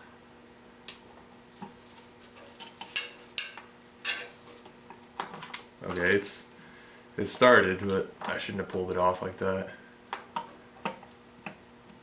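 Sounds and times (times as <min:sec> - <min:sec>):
faint steady hum: 0:00.0 - 0:12.0
screwdriver clinking on metal: 0:02.5 - 0:04.3.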